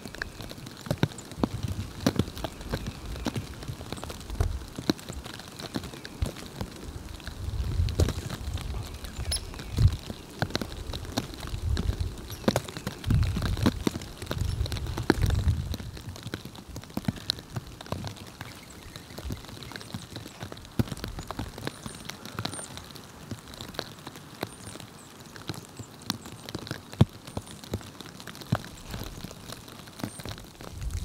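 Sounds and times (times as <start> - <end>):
light ticking patter: 0.0 - 31.0.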